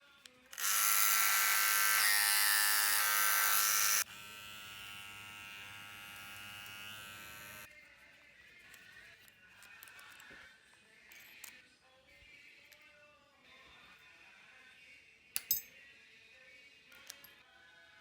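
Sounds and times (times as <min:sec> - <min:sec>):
electric hair clipper buzzing: 0:00.6 - 0:07.7.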